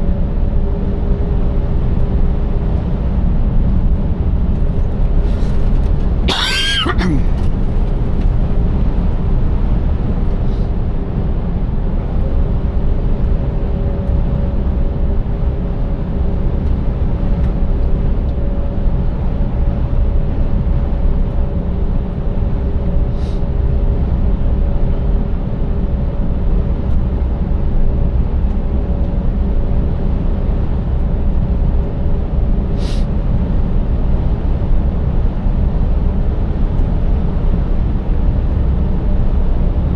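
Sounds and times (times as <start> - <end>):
truck engine rumble: 1.6 - 10.8.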